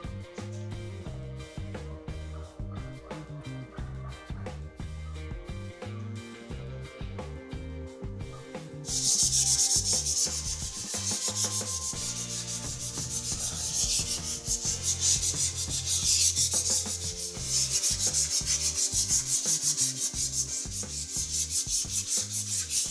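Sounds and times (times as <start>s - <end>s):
sandpaper sanding a wall: 8.8s - 22.9s.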